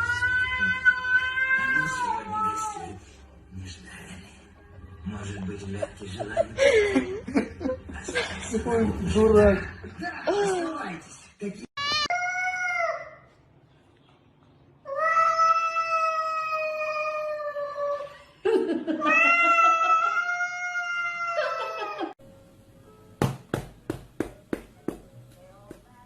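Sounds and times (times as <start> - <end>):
cat yowling: 0.0 - 3.0, 19.0 - 22.1.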